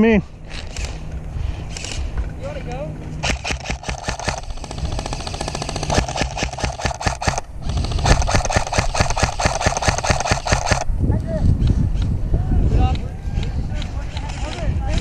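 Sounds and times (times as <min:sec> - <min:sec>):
airsoft rifle firing bursts: 0:03.2 - 0:10.9.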